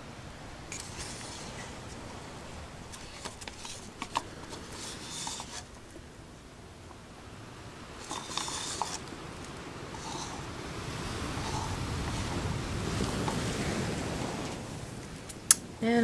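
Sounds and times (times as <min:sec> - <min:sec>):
scratchy rubbing and scraping: 0:00.7 - 0:02.0, 0:02.9 - 0:05.8, 0:08.0 - 0:09.1, 0:09.9 - 0:10.5.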